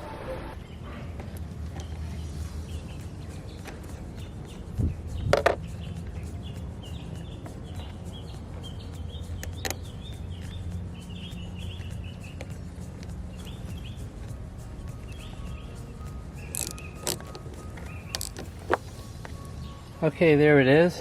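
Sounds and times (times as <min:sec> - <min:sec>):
bird chirping: 0:00.0 - 0:21.0
sharp metallic clicks and knocks: 0:05.2 - 0:05.8, 0:16.5 - 0:18.9.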